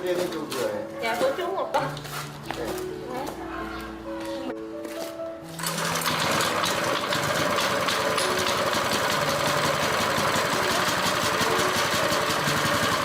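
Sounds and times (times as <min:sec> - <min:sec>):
small gasoline engine running: 0:05.6 - 0:13.0.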